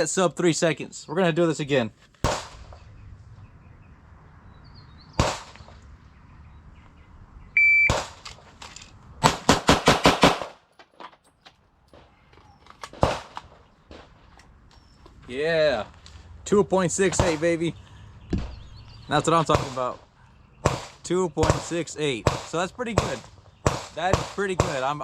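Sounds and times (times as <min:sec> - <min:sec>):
pistol gunshots: 0:02.2 - 0:02.8, 0:05.2 - 0:05.8, 0:07.9 - 0:08.2, 0:09.2 - 0:10.7, 0:12.9 - 0:13.6, 0:17.1 - 0:17.6, 0:19.3 - 0:20.0, 0:20.6 - 0:25.0
shot timer beep: 0:07.6 - 0:08.0.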